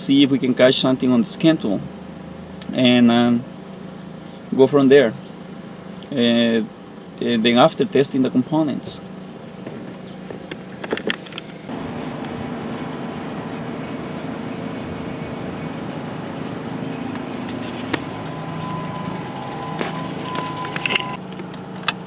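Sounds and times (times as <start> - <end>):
steady mechanical hum: 0.0 - 22.0
clicks: 17.1 - 22.0.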